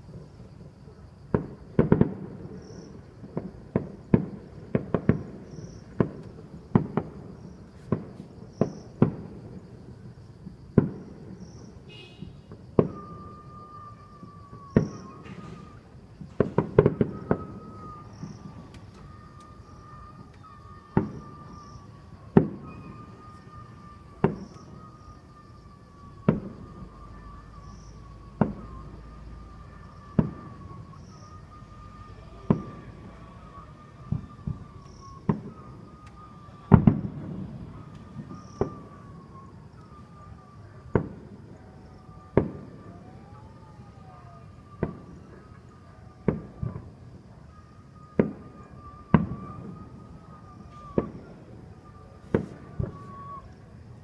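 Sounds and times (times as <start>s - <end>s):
fireworks bangs: 0.0s - 54.0s
faint high tone: 17.0s - 40.9s.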